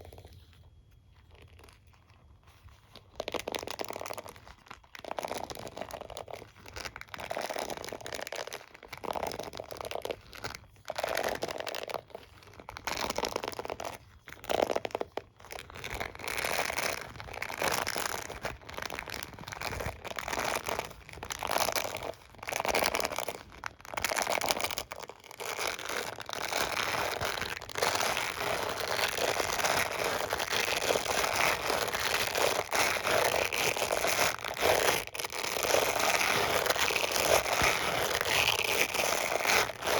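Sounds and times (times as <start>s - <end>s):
scratching on hairbrush and comb: 24.0s - 39.9s.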